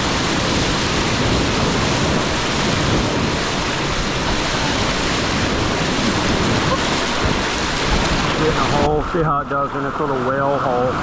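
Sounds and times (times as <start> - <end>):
river rapids rushing: 0.0 - 10.3.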